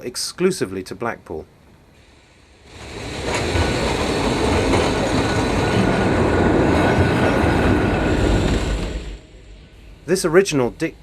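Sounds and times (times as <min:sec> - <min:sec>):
tram wheels rumbling on rails: 0:02.6 - 0:11.0.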